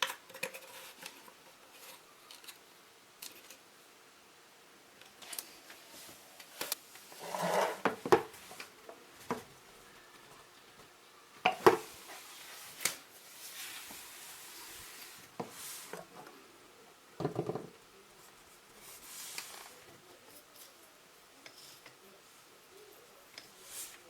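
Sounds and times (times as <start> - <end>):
hard objects clicking and knocking: 17.2 - 17.8.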